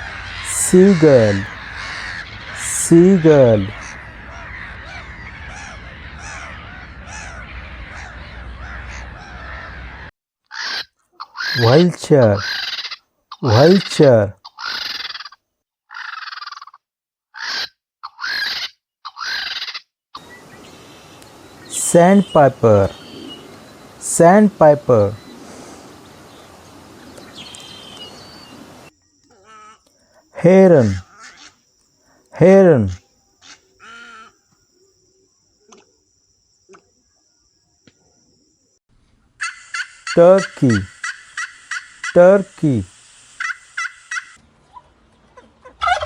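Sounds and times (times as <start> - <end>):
vulture rasping calls: 0.0 - 31.6, 32.5 - 34.4, 39.4 - 44.4
high insect trill: 20.2 - 38.8, 39.4 - 44.4.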